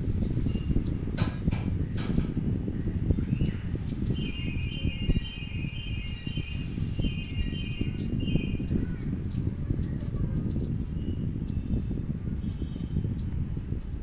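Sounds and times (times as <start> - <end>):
constant low rumble: 0.0 - 14.0
sparrows chirping: 0.0 - 14.0.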